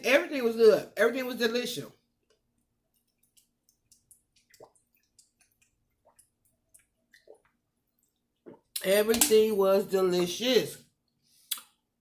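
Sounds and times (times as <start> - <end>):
wet mouth clicks and smacks: 2.3 - 7.5, 11.4 - 11.8.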